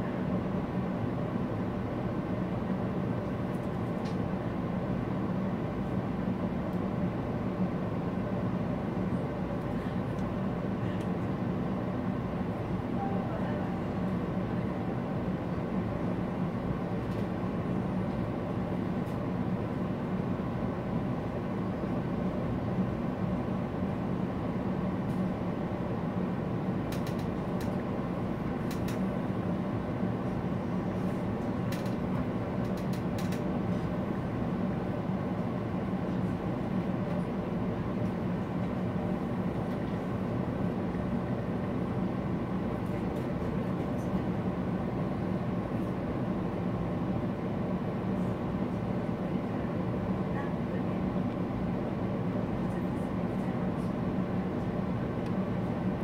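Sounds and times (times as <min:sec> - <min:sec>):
train rumble inside carriage: 0:00.0 - 0:56.0
faint clicks from track: 0:26.9 - 0:27.8, 0:28.7 - 0:29.0, 0:31.7 - 0:33.5.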